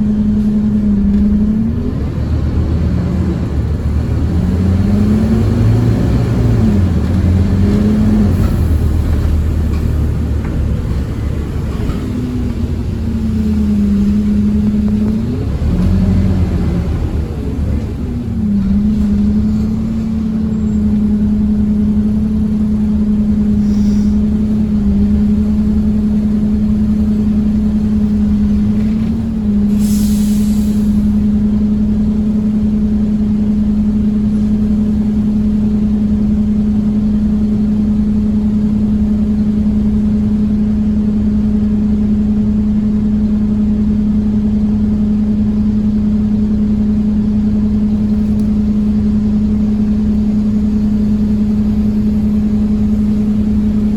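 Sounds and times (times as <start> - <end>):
bus engine drone: 0.0 - 53.9
air hiss: 23.6 - 24.3, 29.7 - 31.0.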